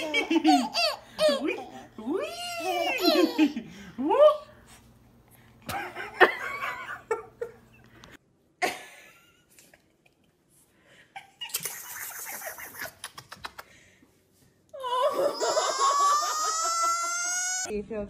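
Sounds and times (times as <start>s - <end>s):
laughter: 5.7s - 7.8s, 8.6s - 10.4s.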